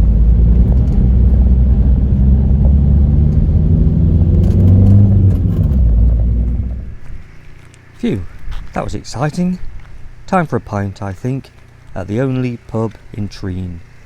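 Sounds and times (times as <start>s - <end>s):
van engine at raised revs: 0.0s - 7.9s.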